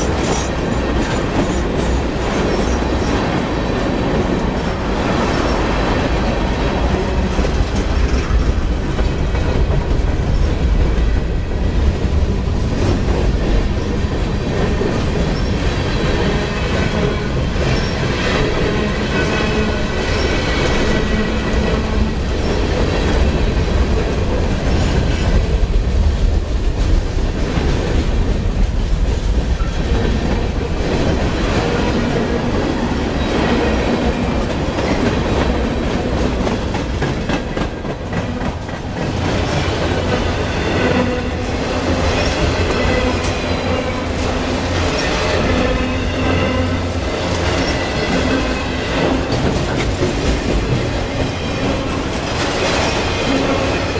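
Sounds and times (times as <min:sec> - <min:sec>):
clickety-clack over rail joints: 0:00.0 - 0:53.9
steel wheels rumbling on rails: 0:00.0 - 0:53.9.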